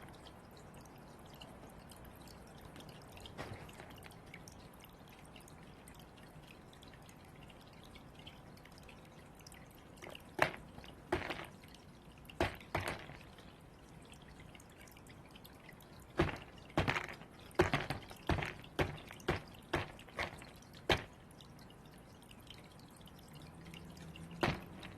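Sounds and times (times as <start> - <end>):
bird pecking sharp knocks: 16.2 - 21.2.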